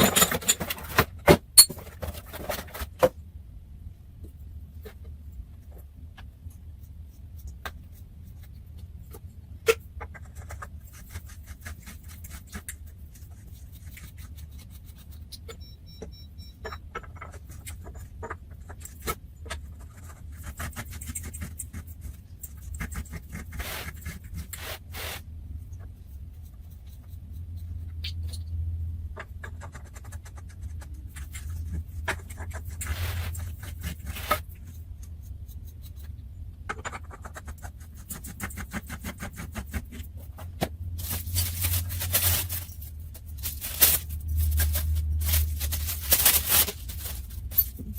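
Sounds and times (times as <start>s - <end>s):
parts clicking and scraping: 0.0s - 3.2s
steady low hum: 0.0s - 47.9s.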